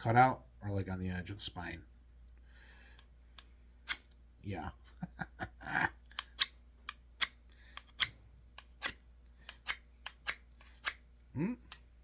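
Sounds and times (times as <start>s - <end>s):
knife scraping ferrocerium rod: 6.2s - 11.0s.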